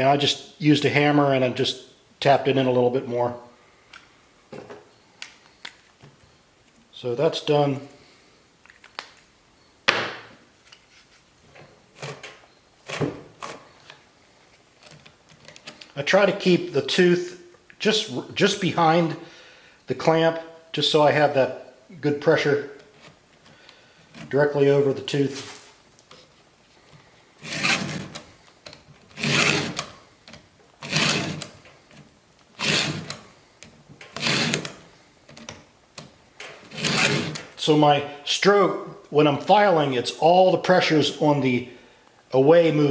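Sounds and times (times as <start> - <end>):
file rasping on chainsaw chain: 29.2 - 29.8, 30.8 - 31.4, 32.6 - 33.2, 34.2 - 34.7, 36.7 - 37.4.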